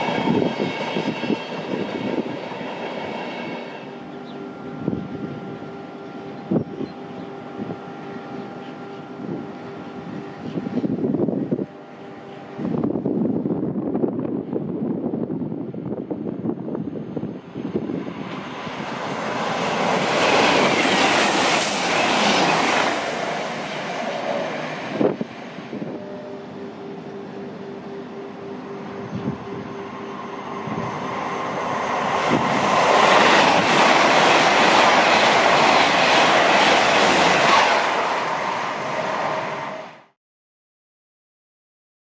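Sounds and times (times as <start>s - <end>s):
train wheels rushing on rails: 0.0s - 5.5s, 15.8s - 26.0s, 29.0s - 40.1s
steady tone: 17.0s - 40.1s.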